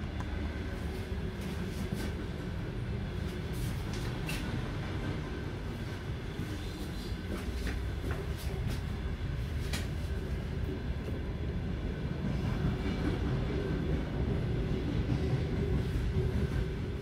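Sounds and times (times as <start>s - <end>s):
train rumble inside carriage: 0.0s - 17.0s.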